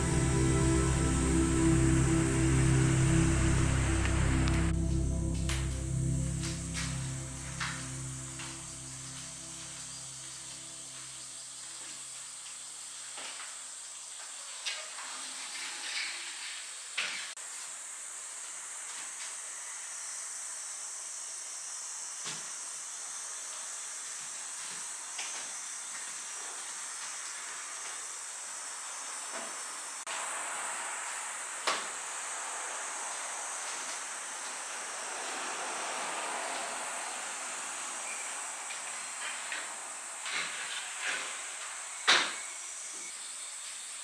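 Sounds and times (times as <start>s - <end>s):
steady hiss: 0.0s - 11.3s, 29.7s - 44.0s.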